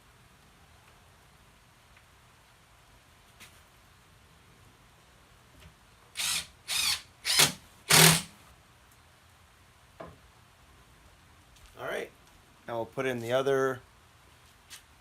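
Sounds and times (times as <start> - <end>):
impact driver driving a screw: 6.2 - 8.3.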